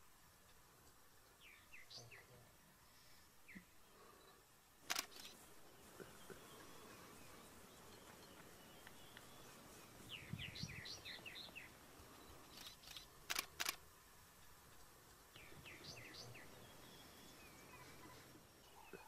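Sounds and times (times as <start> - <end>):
faint outdoor background noise: 0.0 - 19.0
sharp clicks: 4.8 - 5.4, 12.5 - 13.8
high bird chirping: 4.9 - 13.7.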